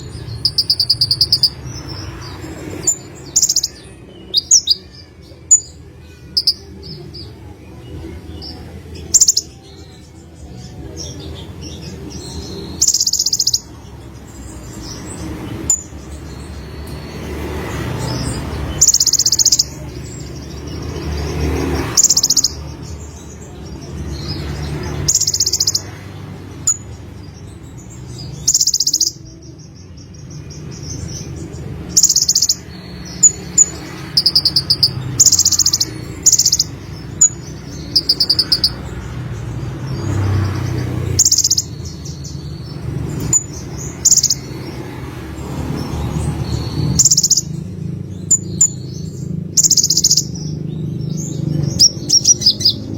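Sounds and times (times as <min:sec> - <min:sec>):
bird singing high trills: 0:00.0 - 0:02.2, 0:12.5 - 0:13.7, 0:31.8 - 0:38.9, 0:46.2 - 0:52.9
sharp bird chips: 0:00.0 - 0:07.4, 0:08.2 - 0:52.9.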